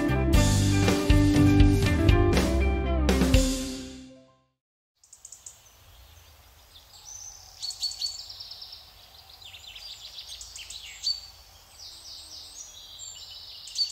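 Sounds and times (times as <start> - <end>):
birds trilling and chirping: 5.0 - 13.9.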